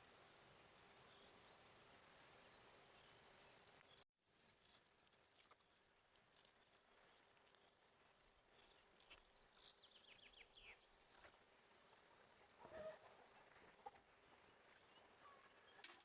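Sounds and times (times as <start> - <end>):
small bird chirping: 8.5 - 11.0
farm animal call: 12.5 - 14.0.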